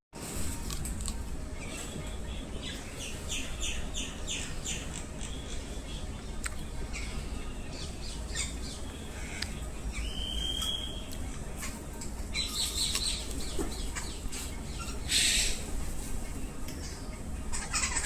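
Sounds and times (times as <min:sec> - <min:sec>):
birds chirping: 0:00.2 - 0:18.0
bird whistled note: 0:10.0 - 0:11.1.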